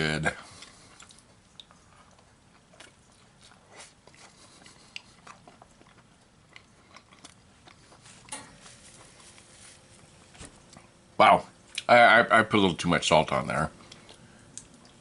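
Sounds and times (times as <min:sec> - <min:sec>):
wet chewing mouth clicks: 0:00.6 - 0:08.0.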